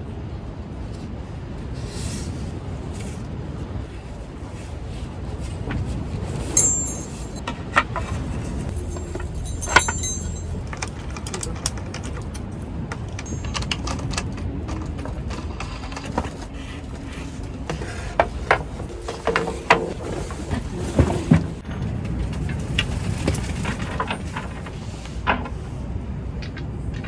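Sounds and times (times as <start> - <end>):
objects clattering: 6.4 - 12.3, 13.2 - 16.4
sharp metallic clinks: 6.6 - 7.4, 8.7 - 10.7, 13.3 - 14.0
steady low rumble: 8.4 - 11.9.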